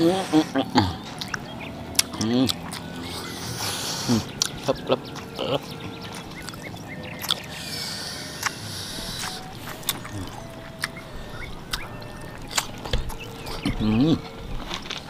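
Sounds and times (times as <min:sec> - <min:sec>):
chewing and lip smacking: 0:00.5 - 0:15.0
sharp mouth clicks: 0:08.3 - 0:11.0.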